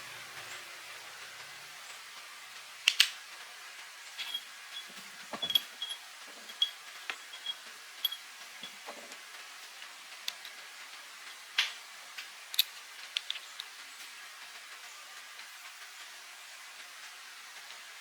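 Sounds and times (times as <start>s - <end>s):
steady hiss: 0.0s - 18.0s
metal tools clinking: 4.2s - 9.2s.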